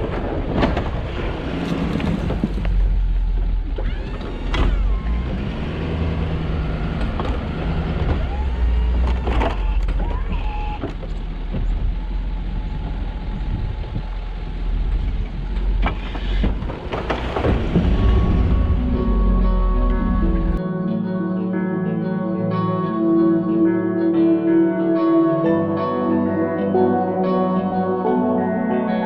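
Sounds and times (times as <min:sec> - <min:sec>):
truck engine running: 0:00.1 - 0:20.6
short squeaks: 0:09.0 - 0:11.2.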